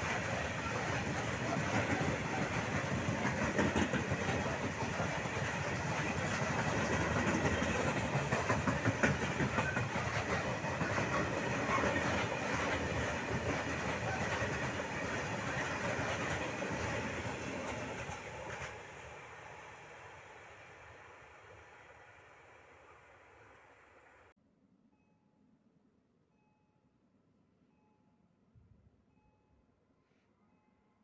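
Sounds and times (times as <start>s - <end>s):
wheels clacking over rail joints: 0.0s - 18.9s
rumble of wheels on rail: 0.0s - 24.3s.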